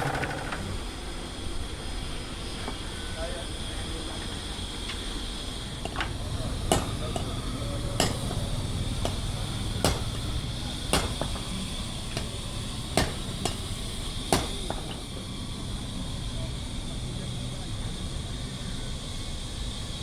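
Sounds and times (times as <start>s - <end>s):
hammer blows: 0.0s - 0.8s.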